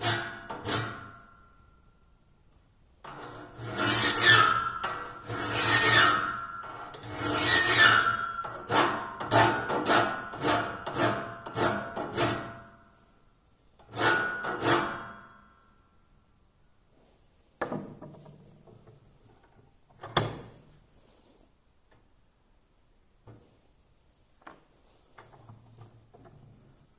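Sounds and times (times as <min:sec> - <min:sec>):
file rasping on saw teeth: 0:03.3 - 0:12.6.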